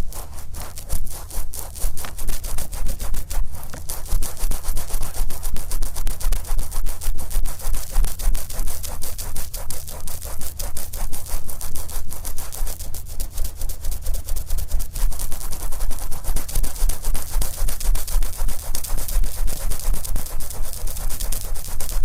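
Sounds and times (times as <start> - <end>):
swab rubbing on microphone: 0.0 - 22.0.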